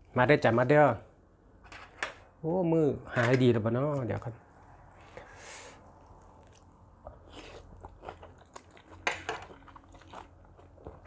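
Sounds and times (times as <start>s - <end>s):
person chewing crunchy food: 5.9s - 11.0s.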